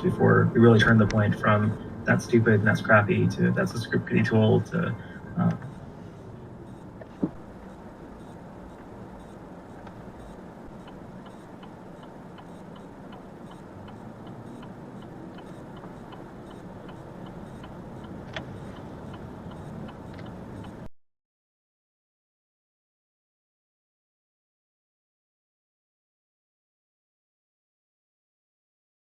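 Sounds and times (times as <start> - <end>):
car cabin road and engine noise: 0.0 - 20.9
turn signal ticking: 0.0 - 20.9.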